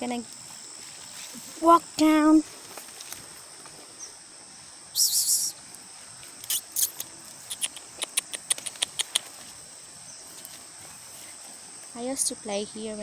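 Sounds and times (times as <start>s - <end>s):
insect chirring: 0.0s - 13.0s
footsteps on dry leaves: 0.3s - 4.0s.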